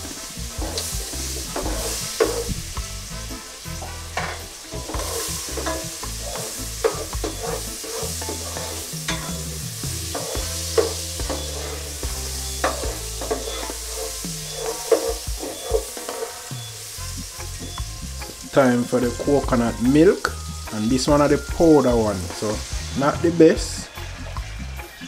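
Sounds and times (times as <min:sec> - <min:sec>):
spatula scraping a pan: 0:00.0 - 0:18.9
vegetables sizzling in butter: 0:00.0 - 0:25.0.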